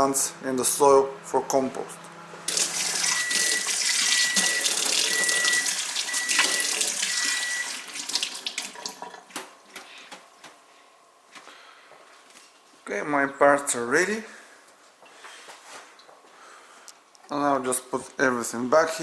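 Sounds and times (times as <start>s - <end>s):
tap water running into sink: 2.5s - 9.5s.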